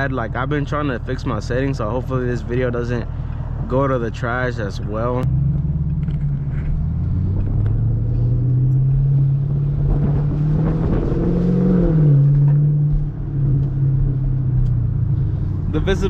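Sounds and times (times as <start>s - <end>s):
car exhaust rumble: 0.0s - 16.0s.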